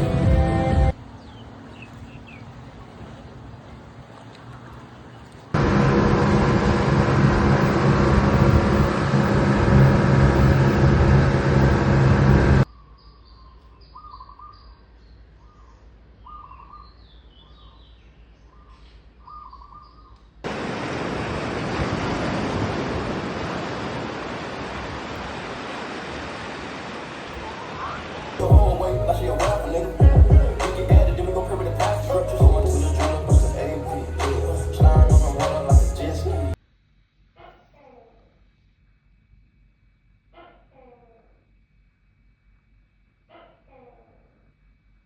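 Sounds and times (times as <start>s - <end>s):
engine running loudly: 5.6s - 12.6s
steady rushing noise: 5.6s - 12.7s, 20.5s - 27.5s
bird calling: 15.4s - 17.9s, 18.5s - 20.3s.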